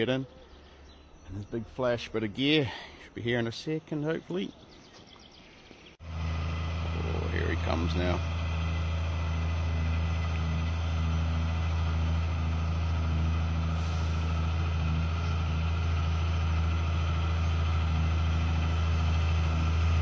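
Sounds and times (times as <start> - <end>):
diesel truck engine droning: 6.0 - 20.0.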